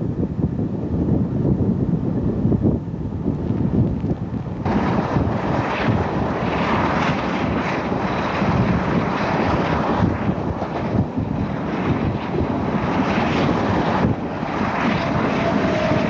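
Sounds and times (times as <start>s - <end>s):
wind buffeting microphone: 0.0s - 16.0s
train rumbling on track: 3.9s - 16.0s.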